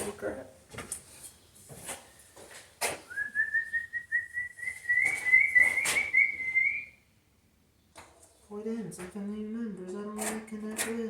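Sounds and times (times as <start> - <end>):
high fluttering whistle: 3.2 - 6.9.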